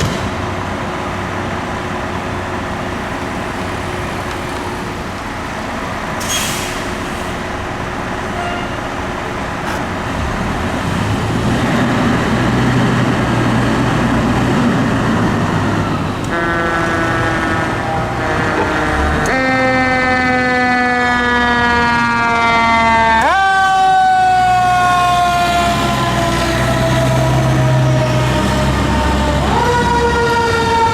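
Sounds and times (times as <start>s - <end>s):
fire truck engine running: 0.0s - 30.9s
traffic noise: 0.0s - 30.9s
siren wailing: 15.7s - 30.9s.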